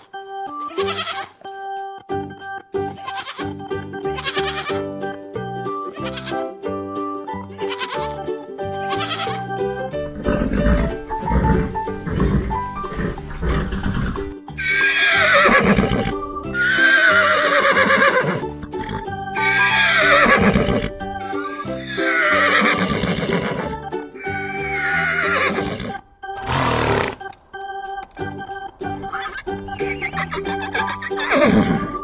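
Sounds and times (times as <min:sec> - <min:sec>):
background music: 0:00.0 - 0:32.0
horse whinnying: 0:04.2 - 0:04.8, 0:10.2 - 0:28.3, 0:29.0 - 0:32.0.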